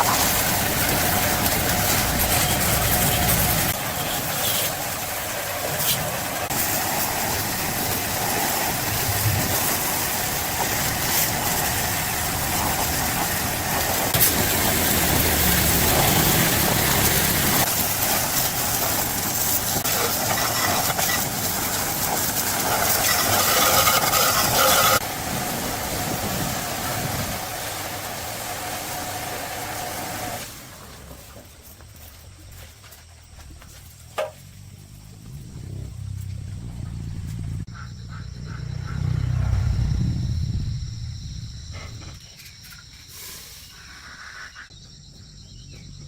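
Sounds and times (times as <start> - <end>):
loud hissing machine: 0.0 - 30.8, 39.0 - 44.0.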